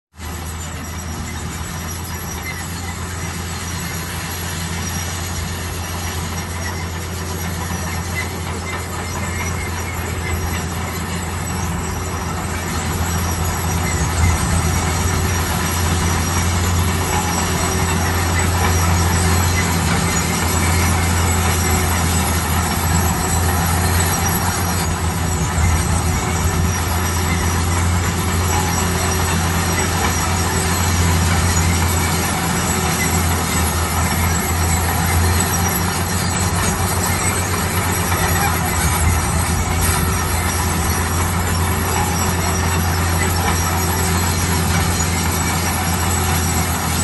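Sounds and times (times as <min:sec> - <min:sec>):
bulldozer diesel drone: 0:00.1 - 0:47.0
steel tracks squealing: 0:00.1 - 0:47.0.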